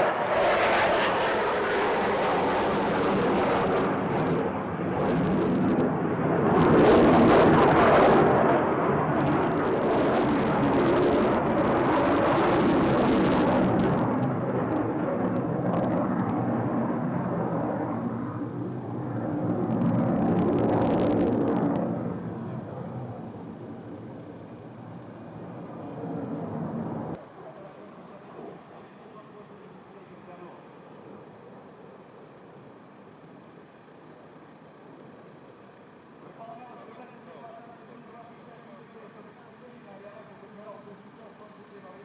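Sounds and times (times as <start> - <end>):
jet fighter engine rushing: 0.0 - 27.2.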